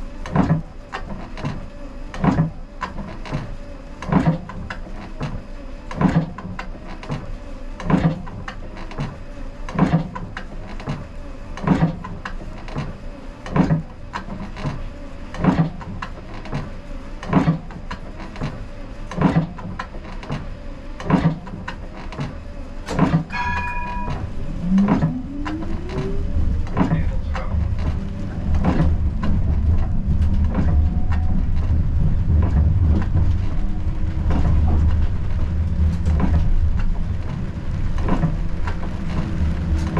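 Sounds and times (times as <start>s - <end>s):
tram rolling rumble: 0.0s - 7.4s, 10.0s - 39.9s
tram drive whine: 22.4s - 39.9s
short beep: 23.3s - 24.3s.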